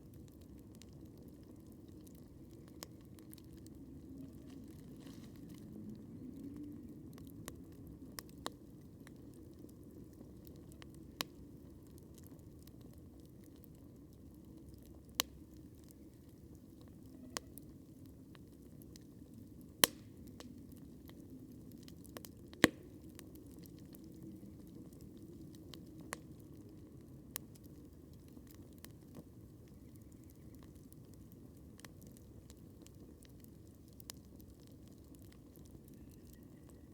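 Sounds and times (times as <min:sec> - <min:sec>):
campfire crackling: 0:00.0 - 0:36.9
loud fire pops: 0:19.8 - 0:20.5.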